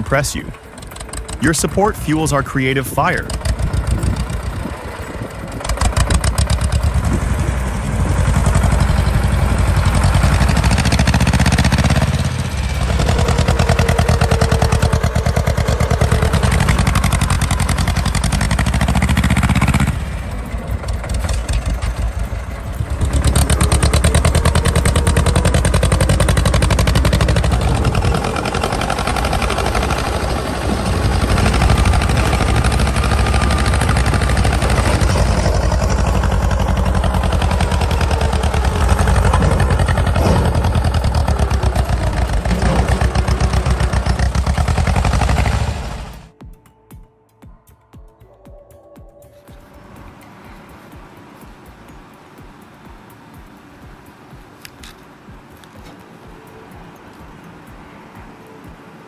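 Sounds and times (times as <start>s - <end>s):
tractor engine running hard: 0.0s - 46.3s.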